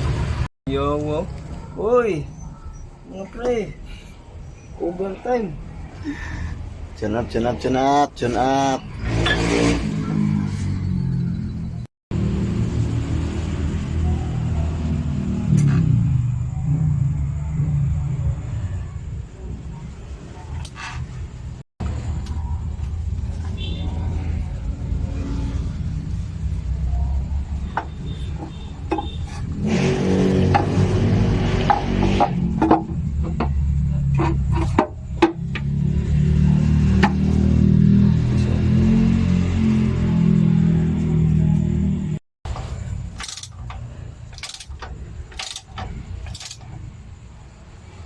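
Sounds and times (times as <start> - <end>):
engine rumbling: 0.0 - 48.0
metallic clicks and knocks: 42.5 - 46.9.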